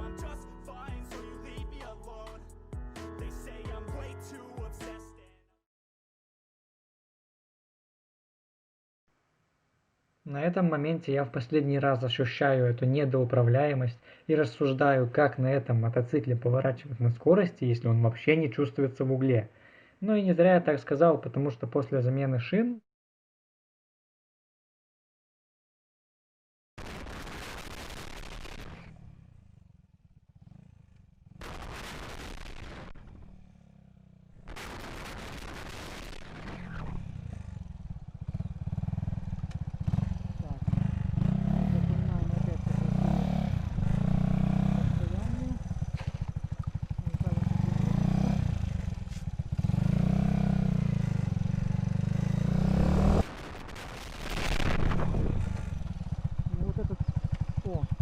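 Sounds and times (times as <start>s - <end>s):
motorcycle engine pulsing: 35.6s - 58.0s
rushing noise: 52.8s - 55.8s
wind gusts on microphone: 54.5s - 55.6s.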